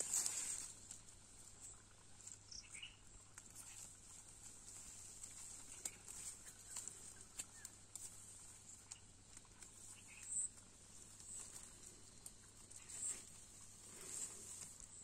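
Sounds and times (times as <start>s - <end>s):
steady high hiss: 0.0s - 15.0s
soft bird chirps: 1.6s - 4.0s, 5.0s - 15.0s
light clicks and rustles: 3.2s - 15.0s.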